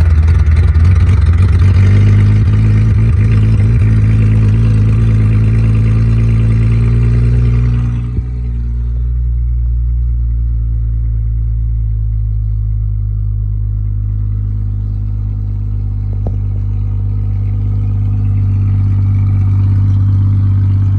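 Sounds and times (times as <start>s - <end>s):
car engine idling: 0.0s - 20.9s.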